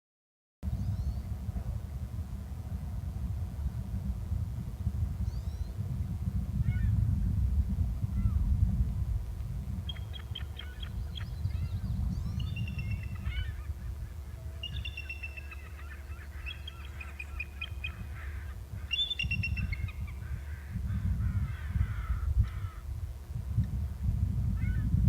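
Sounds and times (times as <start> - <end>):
rough bird chattering: 9.9 - 20.3
birds calling high notes: 14.4 - 20.2.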